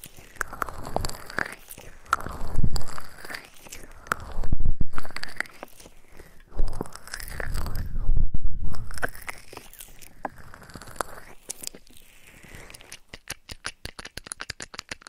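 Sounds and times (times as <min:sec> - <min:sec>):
crackly clicks at microphone: 0:08.7 - 0:15.0.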